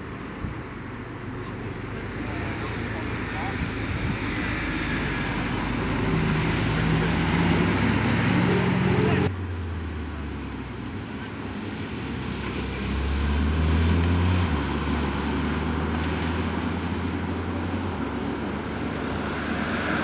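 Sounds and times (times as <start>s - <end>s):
car engine rumbling: 0.0s - 20.0s.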